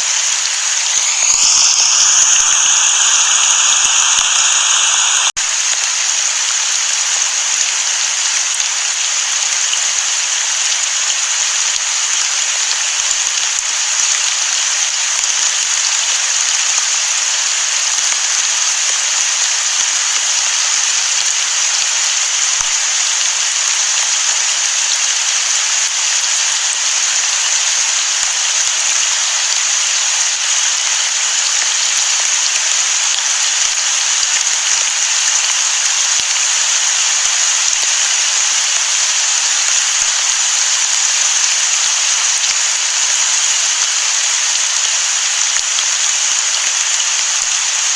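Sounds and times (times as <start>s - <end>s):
heavy rain: 0.0s - 5.4s.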